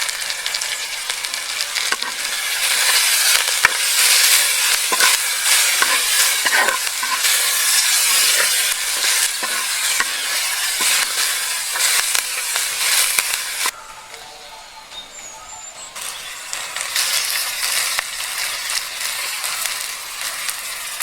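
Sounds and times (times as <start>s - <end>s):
food sizzling in a pan: 0.0s - 14.1s, 15.1s - 21.0s.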